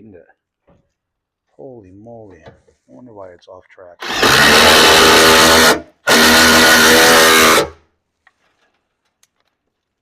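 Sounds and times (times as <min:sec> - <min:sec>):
power drill motor running: 0:04.0 - 0:07.8.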